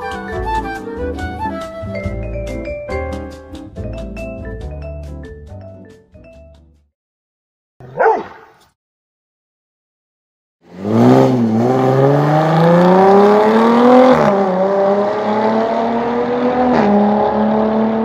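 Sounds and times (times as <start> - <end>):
car engine accelerating hard: 10.7 - 18.0.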